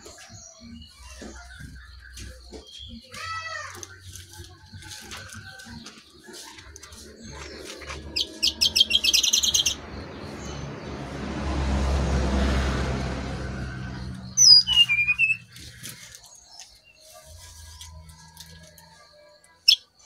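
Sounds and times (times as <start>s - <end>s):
sharp high bird chirps: 6.9s - 10.6s, 14.3s - 16.9s.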